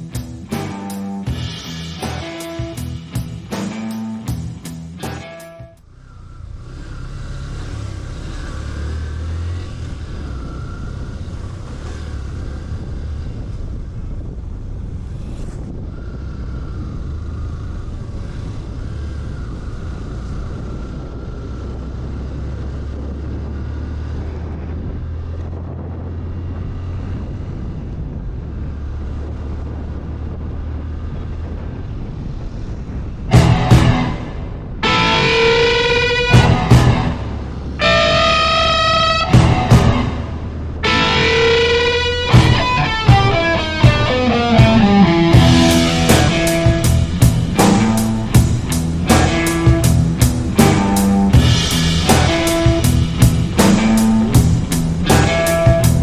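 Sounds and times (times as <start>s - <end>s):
motorcycle engine rumbling: 0.0s - 56.0s
wind noise on microphone: 5.6s - 56.0s
sudden loud burst: 33.3s - 56.0s.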